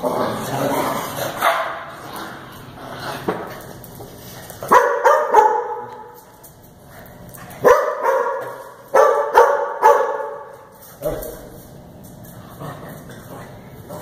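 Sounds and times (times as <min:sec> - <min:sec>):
dog barking: 0:01.4 - 0:01.8, 0:04.7 - 0:06.1, 0:07.6 - 0:10.5.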